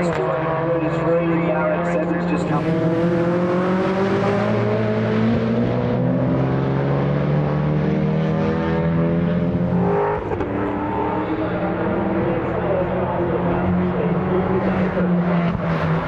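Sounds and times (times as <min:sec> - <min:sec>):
race car engine at high revs: 0:00.0 - 0:16.0.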